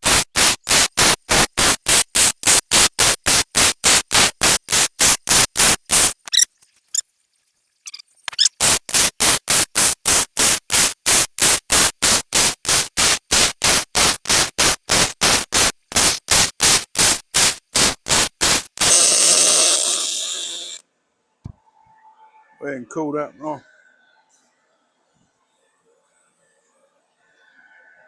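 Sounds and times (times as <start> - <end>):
welding arc crackling: 0.0 - 7.0, 7.8 - 20.8.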